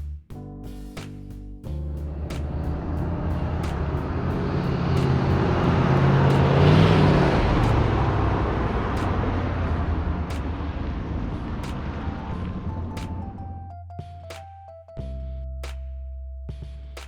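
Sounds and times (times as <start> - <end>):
car driving past: 2.6 - 12.9.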